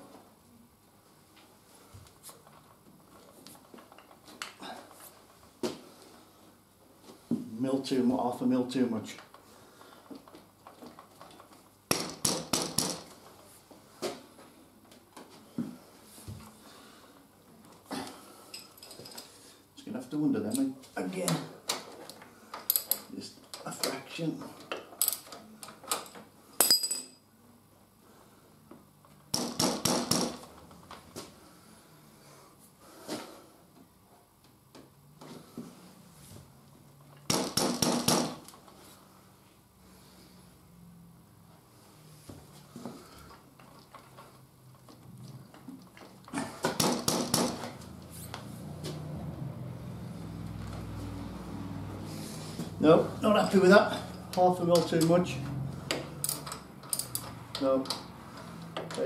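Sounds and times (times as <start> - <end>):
sharp metal knocks: 37.3 - 38.4, 46.7 - 47.7.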